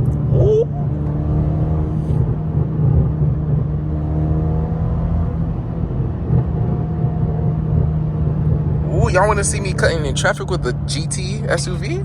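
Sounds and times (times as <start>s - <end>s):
car engine droning while driving: 0.0s - 12.0s.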